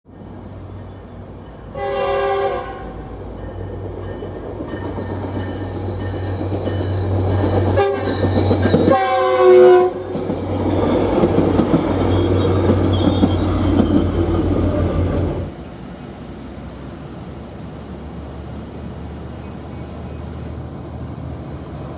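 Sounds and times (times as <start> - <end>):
train engine hum and rail rumble: 0.1 - 21.9
train horn blasts: 1.7 - 3.1, 7.7 - 10.2.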